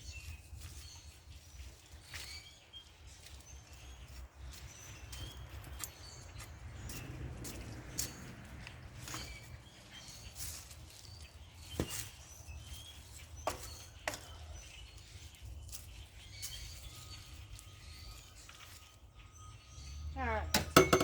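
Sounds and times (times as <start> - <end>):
sharp knocks: 20.5 - 21.0.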